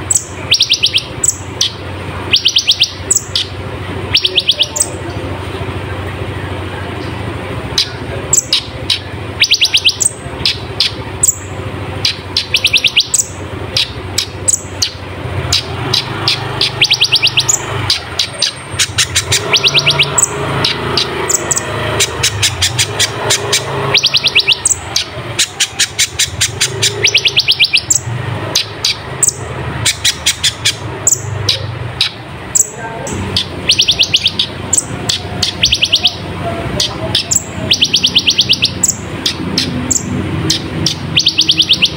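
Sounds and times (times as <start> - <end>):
bird singing high clicking trills: 0.0 - 5.1, 7.0 - 41.9
steady low hum: 0.0 - 37.8.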